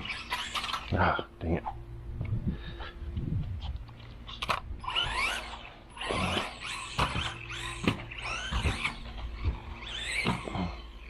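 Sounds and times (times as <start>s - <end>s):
electric motor whining: 0.0s - 11.0s
toy car hitting track: 6.8s - 9.0s.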